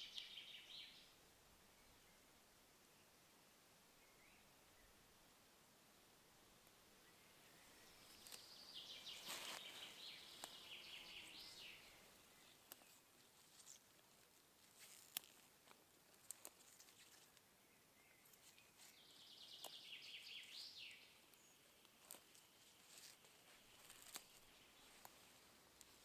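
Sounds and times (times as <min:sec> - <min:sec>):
small clicks and snaps: 0:10.3 - 0:10.6, 0:12.6 - 0:17.5, 0:21.3 - 0:26.0.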